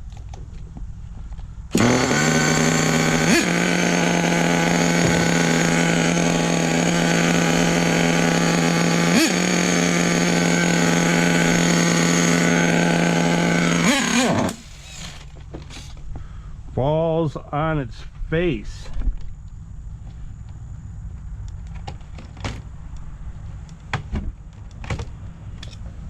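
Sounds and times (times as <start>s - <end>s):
small model engine running: 1.7s - 15.3s.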